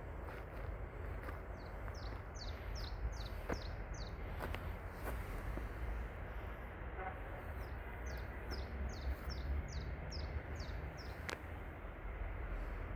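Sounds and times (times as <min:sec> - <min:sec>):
small songbird singing: 0:01.5 - 0:04.4, 0:07.6 - 0:11.4.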